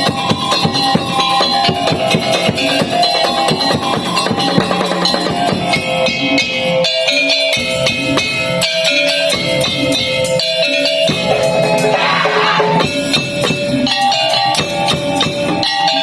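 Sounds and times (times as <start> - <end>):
percussion ensemble playing: 0.0 - 16.0
fast drum strikes: 11.1 - 13.6.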